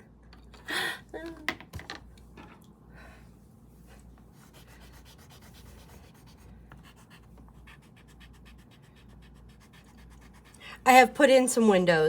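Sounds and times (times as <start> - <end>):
drawing tool scratching paper: 4.4 - 10.6.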